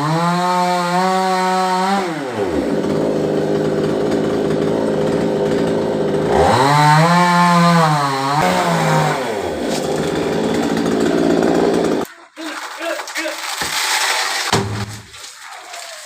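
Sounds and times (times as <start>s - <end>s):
chainsaw cutting wood: 0.0s - 12.1s.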